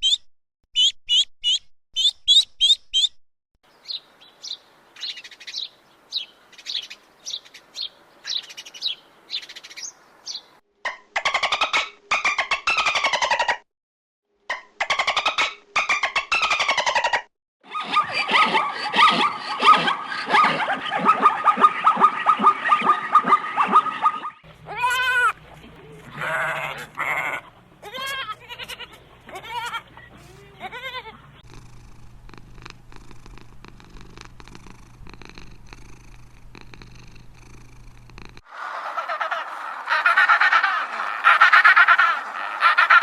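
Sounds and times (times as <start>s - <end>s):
animal chattering calls: 16.3s - 31.5s, 38.5s - 43.0s
animal rising and falling cries: 16.4s - 31.4s, 38.5s - 43.0s.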